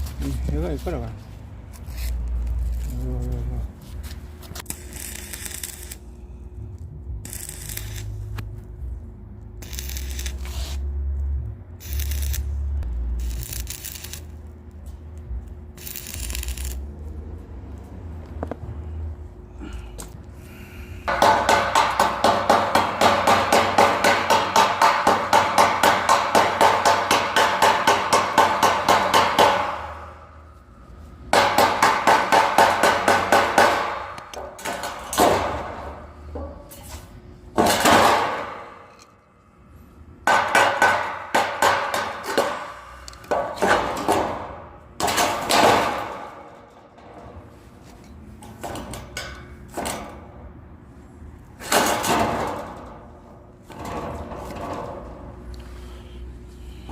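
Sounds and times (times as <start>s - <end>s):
hammer striking steel: 21.1s - 30.5s, 31.3s - 36.8s, 37.6s - 39.1s, 40.2s - 46.7s.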